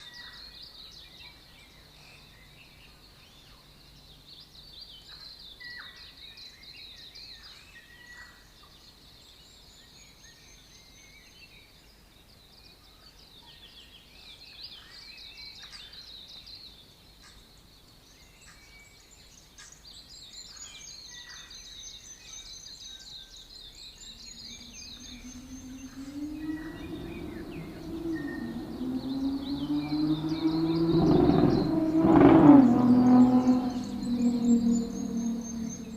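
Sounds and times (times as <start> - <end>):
birds chirping and trilling: 20.9 - 35.9
low rising hum: 23.7 - 35.9.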